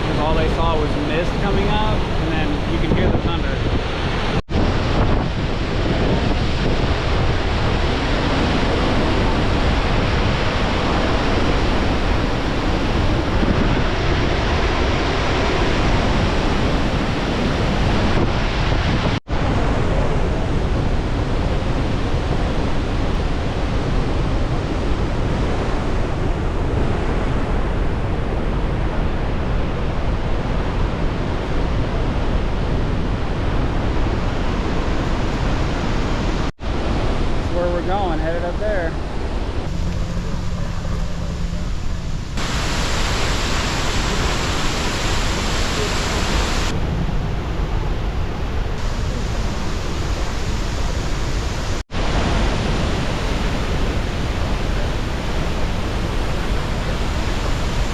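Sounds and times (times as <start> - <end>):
wind on microphone: 0.0 - 57.9
waterfall rushing: 34.2 - 46.8, 48.6 - 57.9.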